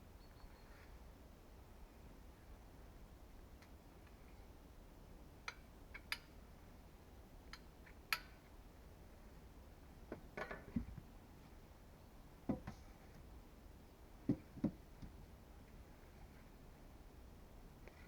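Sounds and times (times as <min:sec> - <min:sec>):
dull knock: 0:12.5 - 0:12.8, 0:14.3 - 0:15.1.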